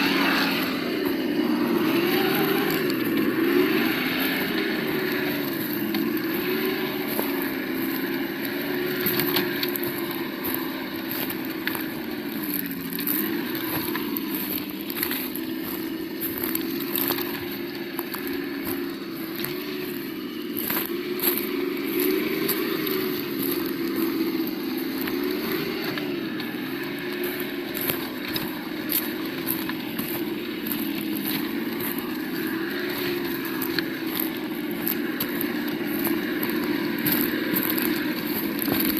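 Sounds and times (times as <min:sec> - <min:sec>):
clicks and crackles: 0:00.0 - 0:38.9
simulated engine sound: 0:00.0 - 0:38.9.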